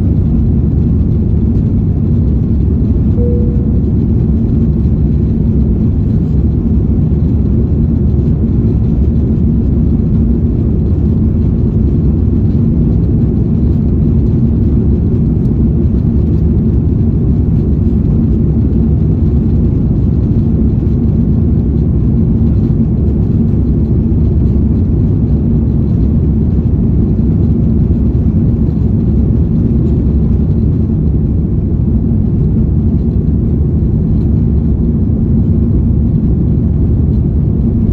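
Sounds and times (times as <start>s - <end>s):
faint steady hum: 0.0s - 11.5s
jet engines rumbling in cabin: 0.0s - 37.9s.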